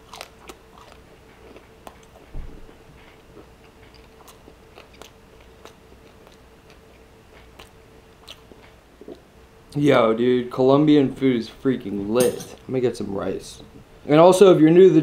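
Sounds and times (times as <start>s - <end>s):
chewing crispy pork: 0.0s - 9.8s.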